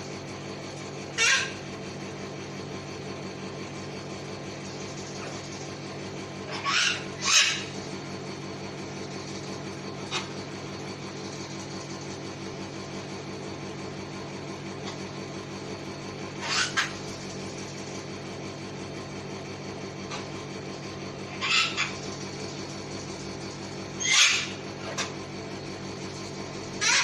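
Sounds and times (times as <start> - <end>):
steady low hum: 0.0 - 27.0
cockatoos screeching: 6.5 - 7.7, 16.4 - 17.0, 21.3 - 22.1, 24.0 - 24.6, 26.8 - 27.0.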